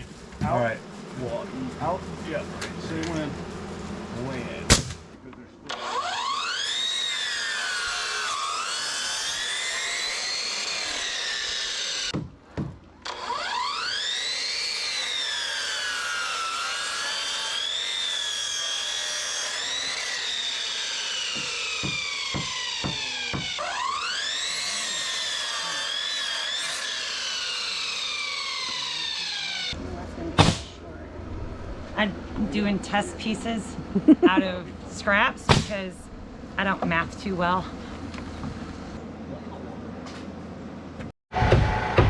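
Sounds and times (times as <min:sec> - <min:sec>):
power saw cutting wood: 0:00.0 - 0:12.2, 0:13.0 - 0:29.8.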